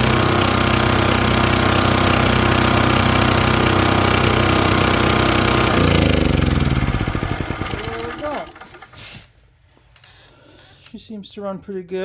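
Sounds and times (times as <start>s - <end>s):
generator engine running: 0.0s - 9.1s.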